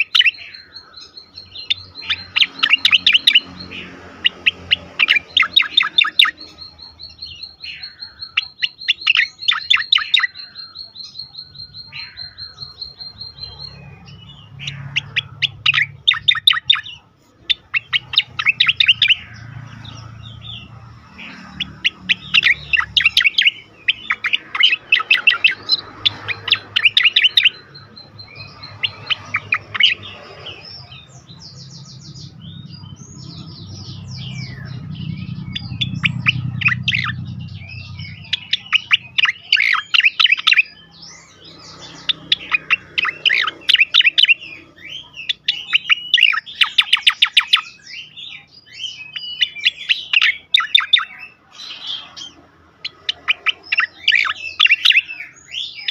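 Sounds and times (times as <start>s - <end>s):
bird chirps: 0.0s - 55.9s
bird singing rattling notes: 0.0s - 55.9s
low rumble: 30.9s - 38.4s.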